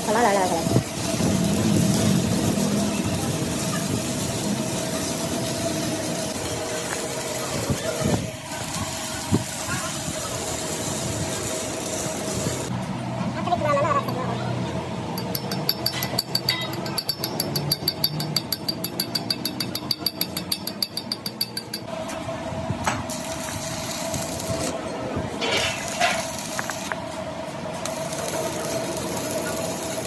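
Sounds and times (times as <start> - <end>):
machine hum: 0.0 - 13.5
fast metal tapping: 15.2 - 21.9.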